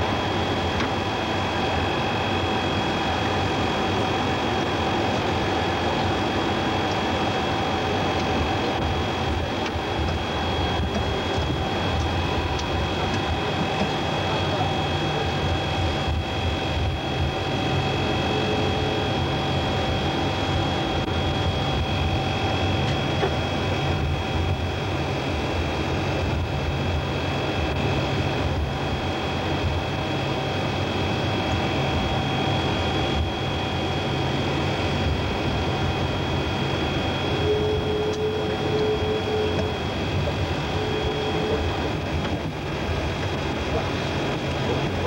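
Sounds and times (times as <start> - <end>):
aircraft cabin drone: 0.0 - 45.0
steady electronic tone: 36.0 - 42.1.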